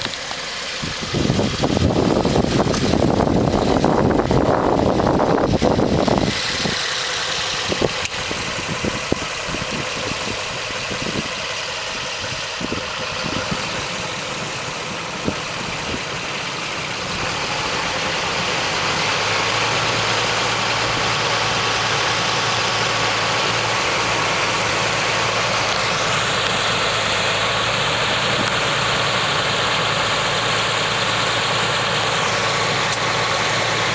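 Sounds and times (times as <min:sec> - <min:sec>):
sharp clicks: 0:32.8 - 0:33.1.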